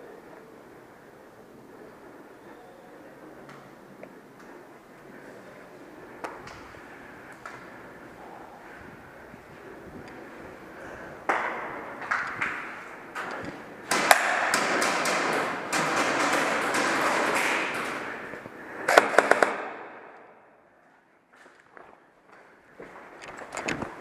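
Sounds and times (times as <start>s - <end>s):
airsoft guns firing: 13.8s - 20.5s.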